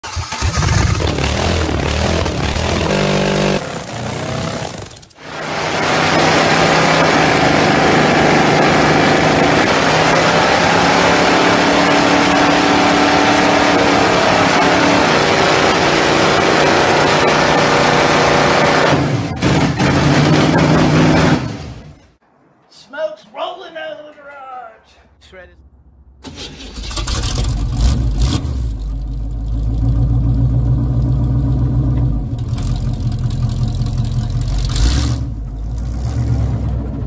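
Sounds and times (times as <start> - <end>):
hot rod engine at high revs: 0.0 - 21.7, 32.4 - 37.0.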